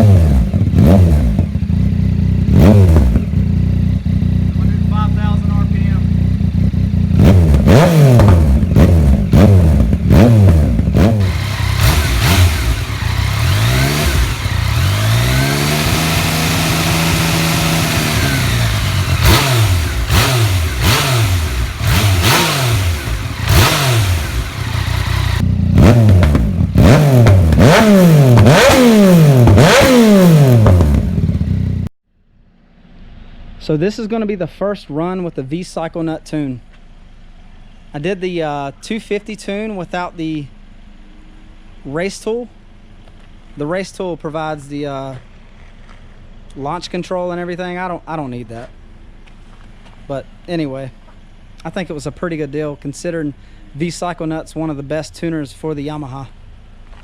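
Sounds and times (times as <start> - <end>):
motorcycle engine revving: 0.0 - 31.9.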